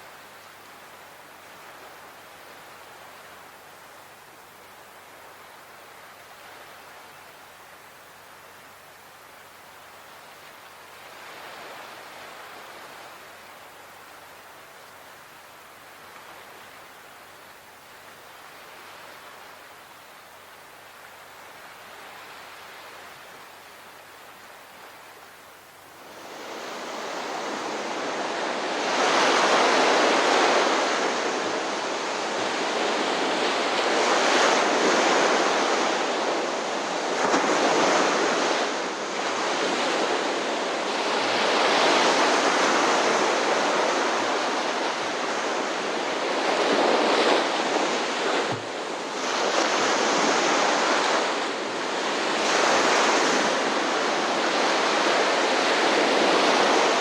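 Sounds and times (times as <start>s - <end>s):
ocean waves breaking: 26.0s - 57.0s.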